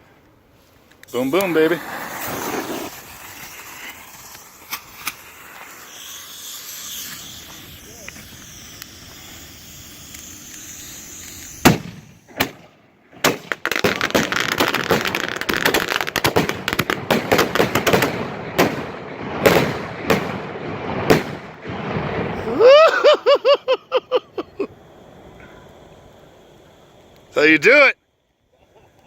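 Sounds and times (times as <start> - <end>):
firework hiss: 0.0 - 29.0
sharp bangs: 1.2 - 22.7
rapid firecracker pops: 1.4 - 6.2, 10.0 - 22.4.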